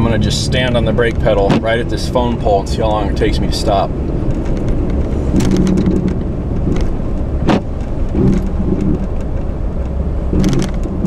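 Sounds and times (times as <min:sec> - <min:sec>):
tyre and road rumble: 0:00.0 - 0:11.0
abs pump buzzing and clicking: 0:04.3 - 0:11.0.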